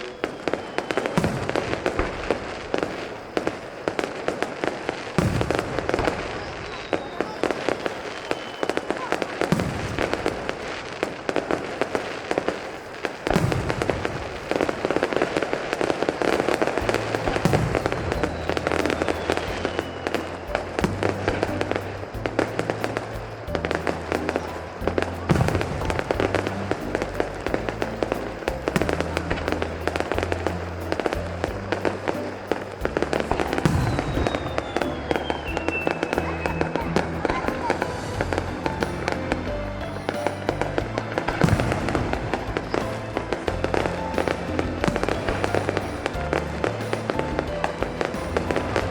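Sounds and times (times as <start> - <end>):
falling firework whistle: 0.0 - 48.9
fireworks bursting and crackling: 0.0 - 48.9
music with bass line: 16.4 - 48.9.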